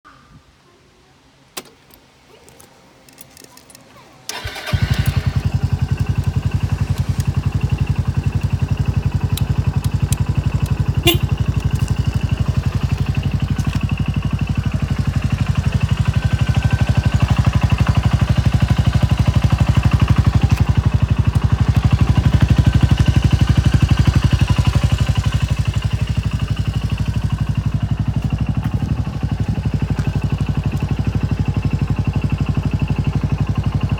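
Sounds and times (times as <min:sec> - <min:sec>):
scooter engine starting and idling: 0:04.3 - 0:33.9.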